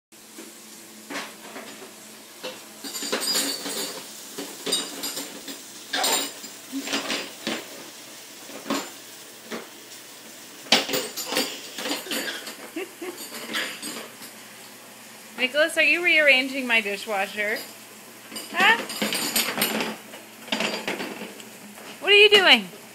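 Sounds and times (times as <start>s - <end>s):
dishes and cutlery clattering: 2.4s - 7.8s, 8.5s - 9.7s, 10.7s - 14.4s, 17.6s - 21.4s.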